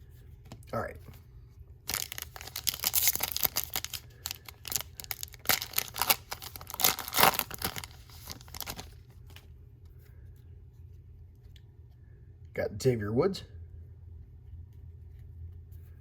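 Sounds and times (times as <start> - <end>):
plastic wrapper tearing and crinkling: 1.9 - 9.1.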